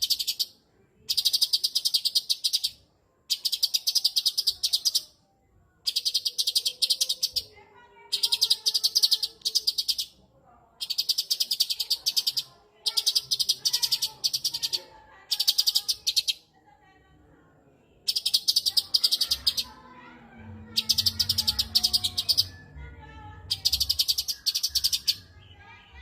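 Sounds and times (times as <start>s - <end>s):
bird singing rapid high notes: 0.0s - 5.2s, 5.8s - 7.5s, 18.1s - 19.8s, 20.7s - 22.8s, 23.4s - 26.0s.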